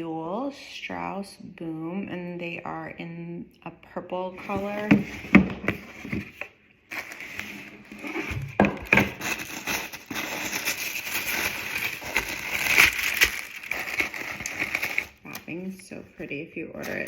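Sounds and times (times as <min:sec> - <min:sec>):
tissue paper rustling: 0:04.4 - 0:15.4.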